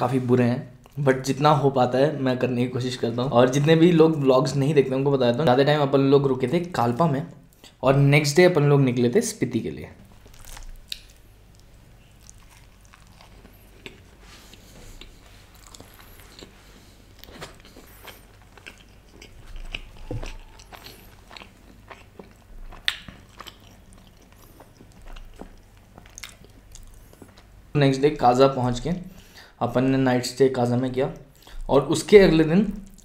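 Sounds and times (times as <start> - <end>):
close-miked chewing: 10.2 - 27.6, 32.8 - 33.0.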